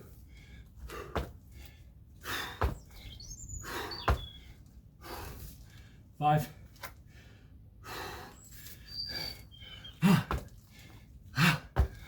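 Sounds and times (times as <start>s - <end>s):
heavy breathing: 7.0s - 12.0s.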